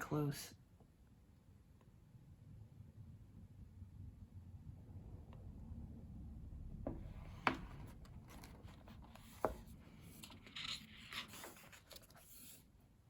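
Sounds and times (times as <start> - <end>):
low steady hum: 0.0 - 13.0
paper rustling and rubbing: 7.2 - 12.8.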